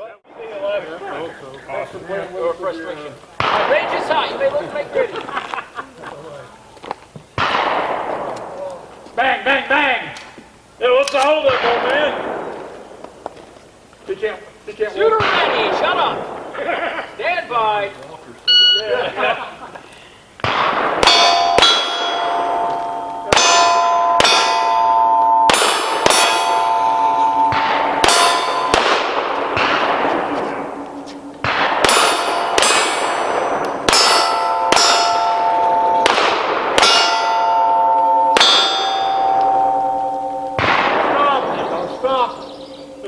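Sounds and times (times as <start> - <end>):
pistol shots: 3.4 - 5.0, 7.4 - 9.0, 11.0 - 13.4, 15.1 - 17.2, 20.4 - 43.0
steel plate ringing: 20.6 - 43.0.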